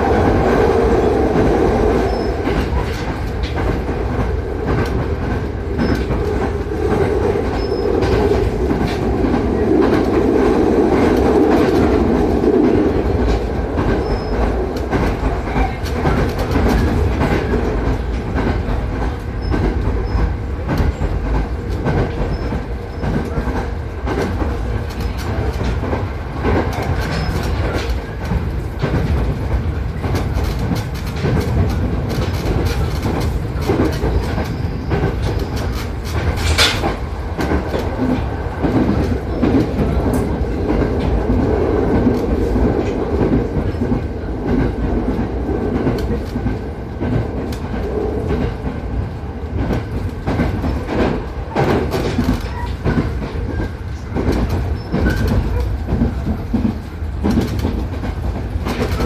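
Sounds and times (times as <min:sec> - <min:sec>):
clickety-clack of rail joints: 0:00.0 - 0:59.0
train wheels rumbling on track: 0:00.0 - 0:59.0.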